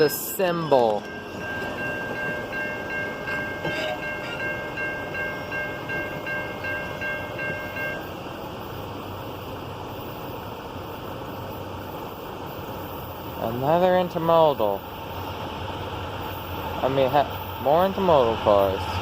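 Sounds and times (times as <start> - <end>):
high repeating ringing tone: 0.0 - 8.2
freight train wheels rumbling: 0.0 - 19.0.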